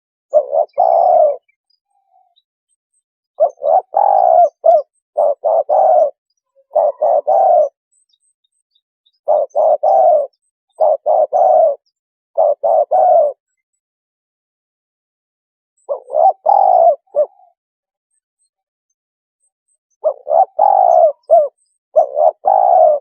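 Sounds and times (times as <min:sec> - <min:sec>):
dove cooing: 0:00.3 - 0:02.4, 0:03.4 - 0:07.8, 0:09.2 - 0:13.5, 0:15.8 - 0:17.6, 0:20.0 - 0:23.0.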